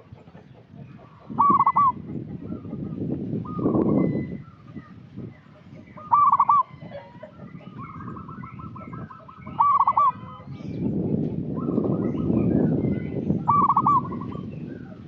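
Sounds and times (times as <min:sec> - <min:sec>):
dove cooing: 0:01.2 - 0:04.1, 0:06.0 - 0:10.6, 0:13.4 - 0:15.0.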